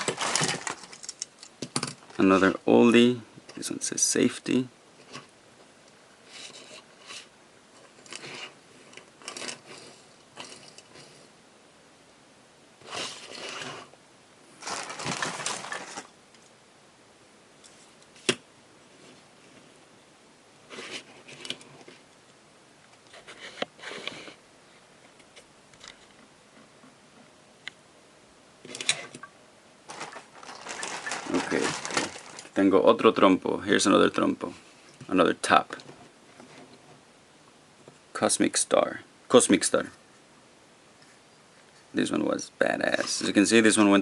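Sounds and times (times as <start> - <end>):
bag rustling: 0.0 - 1.2, 14.6 - 16.2, 29.9 - 32.7.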